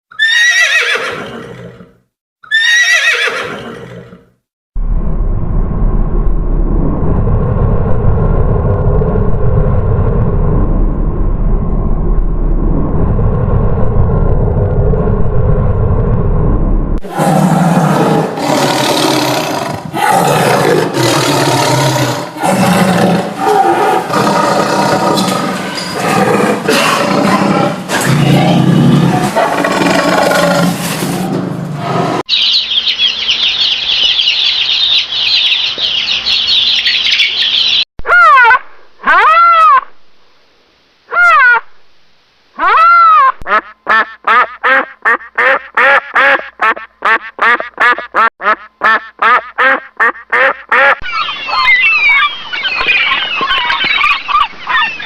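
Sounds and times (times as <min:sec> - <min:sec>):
horse whinnies: 0:00.1 - 0:04.2
steady low noise with hum: 0:04.8 - 0:17.0.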